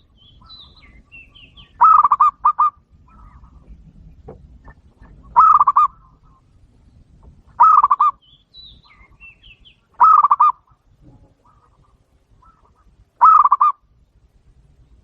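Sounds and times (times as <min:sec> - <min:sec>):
dove cooing: 0:00.9 - 0:03.8, 0:05.0 - 0:06.5, 0:07.5 - 0:08.2, 0:10.0 - 0:10.7, 0:11.4 - 0:13.8.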